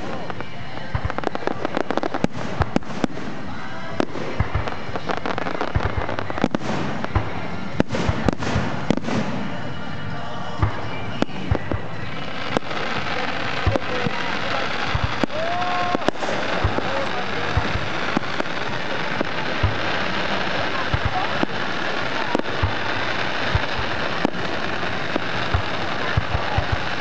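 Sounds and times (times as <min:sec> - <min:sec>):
firework bangs and crackling: 0:00.0 - 0:27.0.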